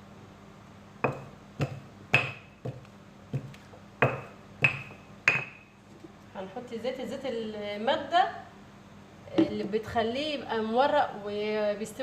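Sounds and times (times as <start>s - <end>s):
utensil knocking on hard surface: 1.0s - 5.6s.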